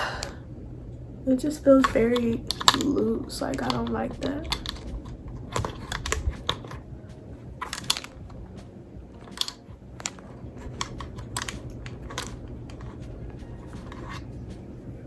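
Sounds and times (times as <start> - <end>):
plastic clicks and light knocks: 1.8 - 6.8.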